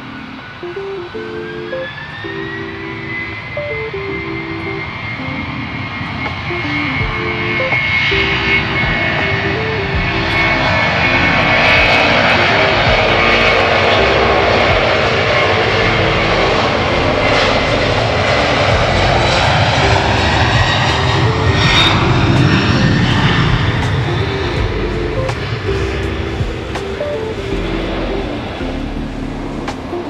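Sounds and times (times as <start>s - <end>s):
jet engines whining: 0.0s - 30.0s.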